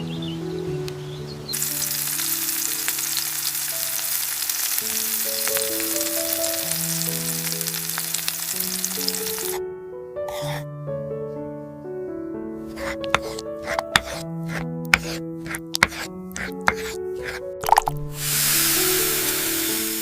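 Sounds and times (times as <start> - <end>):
soft background music: 0.0 - 20.0
food sizzling in frying pan: 1.6 - 9.6, 15.8 - 20.0.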